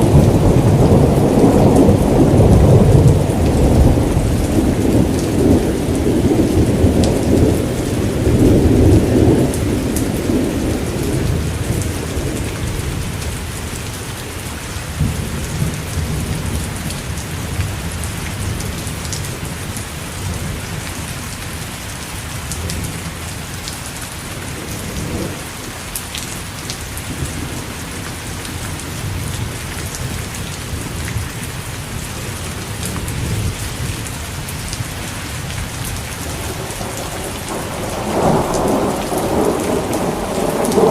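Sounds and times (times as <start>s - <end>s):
thunder rolling: 0.0s - 13.2s, 36.2s - 40.9s
steady rain falling: 0.0s - 40.9s.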